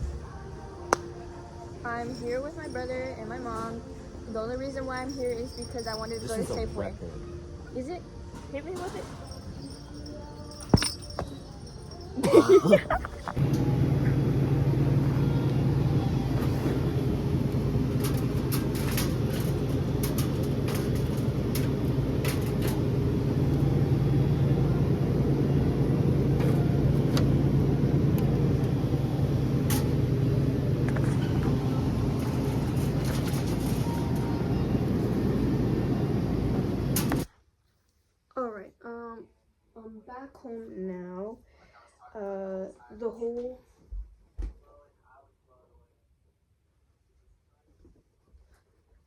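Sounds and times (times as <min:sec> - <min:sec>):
car engine and road noise: 0:13.3 - 0:37.3.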